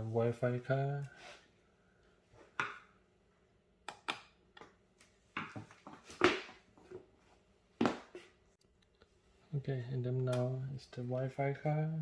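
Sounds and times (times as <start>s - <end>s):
hands clicking and tapping parts: 3.8s - 6.4s.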